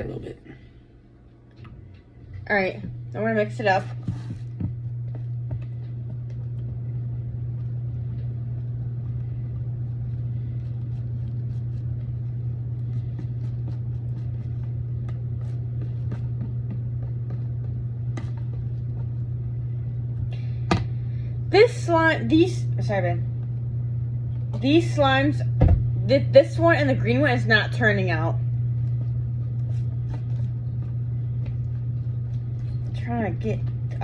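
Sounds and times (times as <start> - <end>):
steady low hum: 0.0 - 34.0
slime stirred in a bowl: 3.7 - 20.2.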